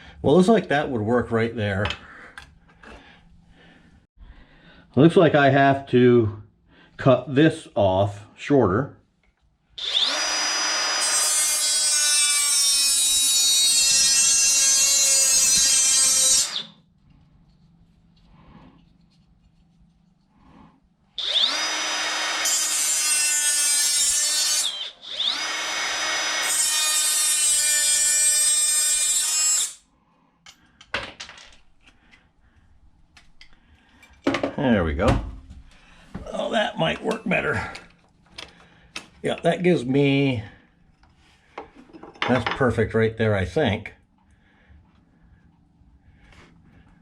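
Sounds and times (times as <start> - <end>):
small power saw cutting: 9.8 - 16.8, 21.2 - 29.8.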